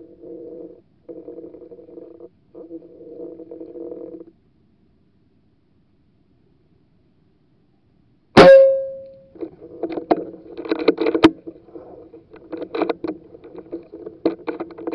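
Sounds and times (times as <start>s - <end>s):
steady low hum: 0.0s - 14.9s
loud ringing crack: 8.4s - 9.2s.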